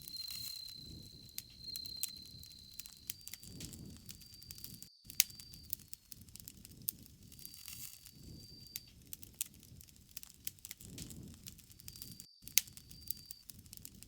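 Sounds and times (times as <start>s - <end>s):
thin high steady tone: 0.0s - 6.0s
bonfire crackling: 0.0s - 14.0s.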